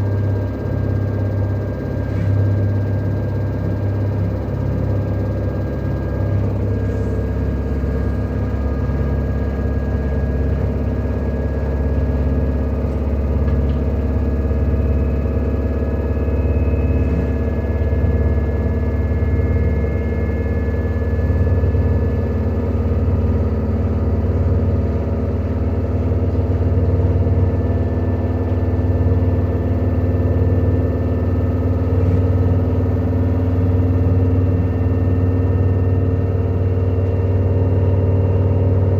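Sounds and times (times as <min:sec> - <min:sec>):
faint high whine: 0:00.0 - 0:22.5
washing machine spin rumble: 0:00.0 - 0:38.9.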